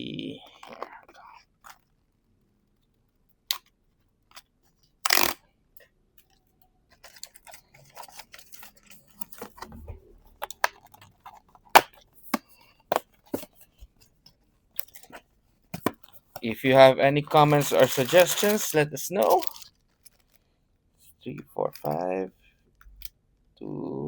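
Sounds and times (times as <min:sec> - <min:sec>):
card packs being opened: 0:07.0 - 0:09.8, 0:15.8 - 0:20.4
packaging crinkling: 0:16.6 - 0:20.4
sharp clicks of packaging: 0:17.3 - 0:20.4.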